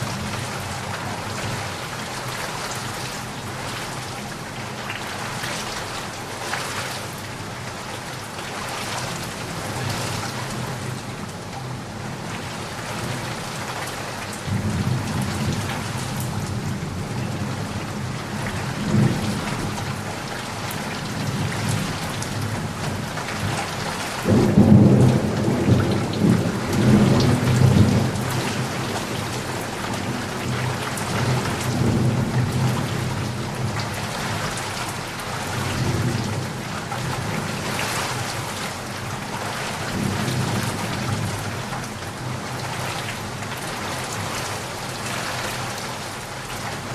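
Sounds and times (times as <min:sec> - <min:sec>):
steady rain falling: 0:00.0 - 0:46.9
rolling thunder: 0:24.2 - 0:34.4.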